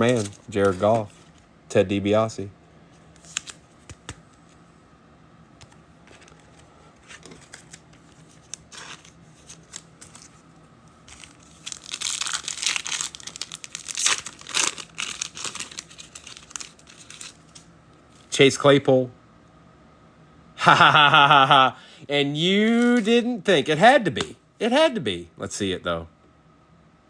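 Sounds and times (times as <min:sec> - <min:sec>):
foil wrapper tearing and crinkling: 0:00.0 - 0:01.3, 0:07.2 - 0:10.3, 0:11.1 - 0:17.7.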